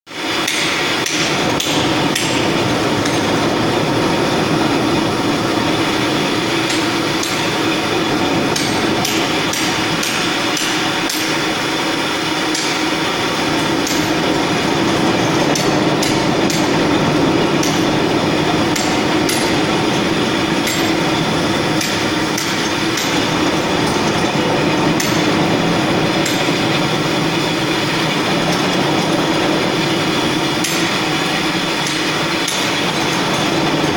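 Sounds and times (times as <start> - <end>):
concrete floor grinder grinding: 0.2 - 33.9
sharp clicks and ticks: 0.4 - 3.3, 6.6 - 7.5, 8.5 - 11.4, 13.6 - 14.4, 15.1 - 16.9, 17.6 - 17.9, 18.7 - 19.6, 20.6 - 21.0, 21.8 - 24.2, 26.1 - 26.9, 30.6 - 31.0, 31.8 - 33.8.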